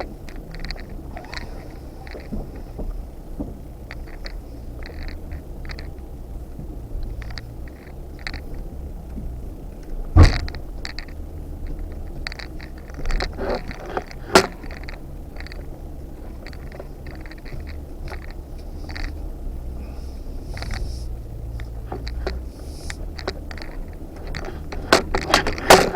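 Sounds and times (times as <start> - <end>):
clicks creaks and rattles: 0.0 - 6.1, 6.9 - 19.8, 20.5 - 25.9
vehicle engine low rumble: 0.0 - 25.9
heavy thump: 2.2 - 3.7, 10.1 - 10.7.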